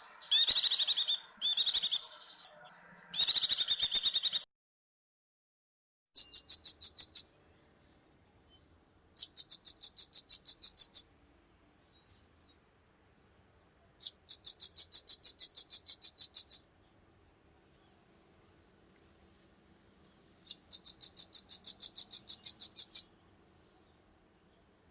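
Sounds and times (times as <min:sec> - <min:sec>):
songbird chip notes: 0:00.0 - 0:04.4, 0:19.6 - 0:24.7.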